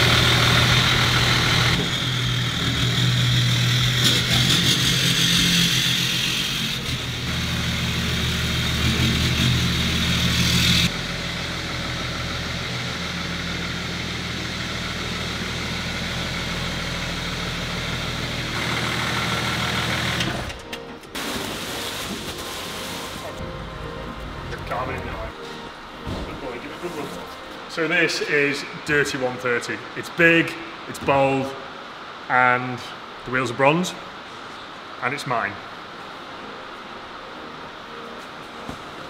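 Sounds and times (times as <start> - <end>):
engine idling: 0.0 - 20.7.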